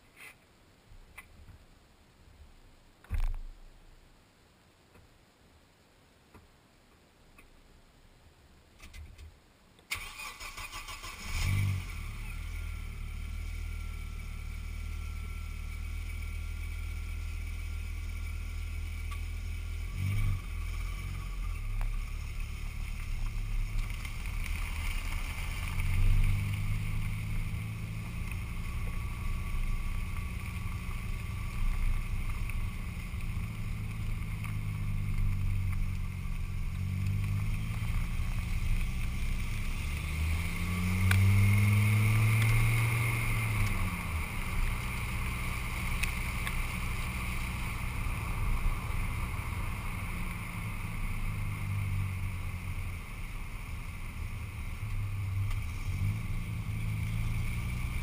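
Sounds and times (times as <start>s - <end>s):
steady hiss: 0.0s - 58.0s
car engine cranking and starting: 9.9s - 52.8s
car pulling away: 9.9s - 58.0s.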